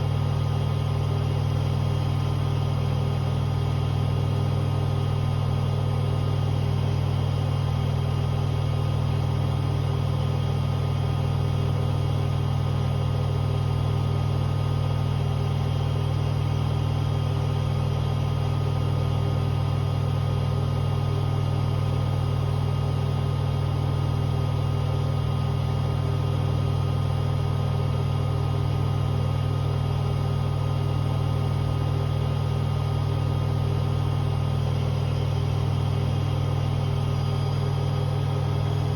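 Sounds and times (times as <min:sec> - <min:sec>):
washing machine spinning: 0:12.2 - 0:38.9.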